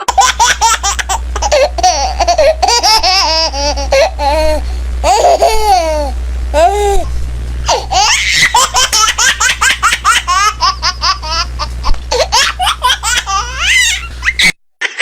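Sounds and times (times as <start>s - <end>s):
child laughing: 0.0s - 7.1s, 7.7s - 15.0s.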